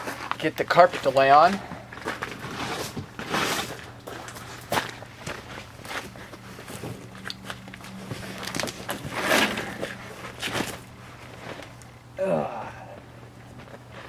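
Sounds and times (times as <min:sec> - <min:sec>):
footsteps scuffing: 0:00.0 - 0:11.7
faint low hum: 0:00.4 - 0:14.0
carpet rustling: 0:01.0 - 0:11.9.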